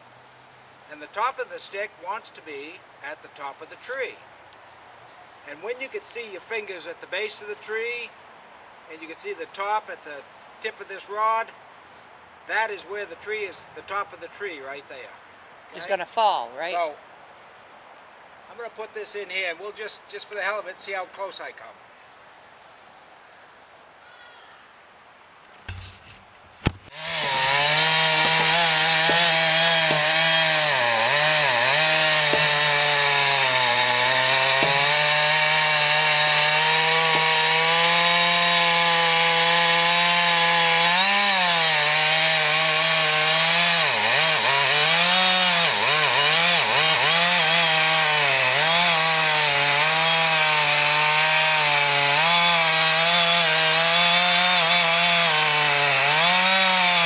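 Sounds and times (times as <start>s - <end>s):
chainsaw cutting into wood: 25.7s - 57.0s.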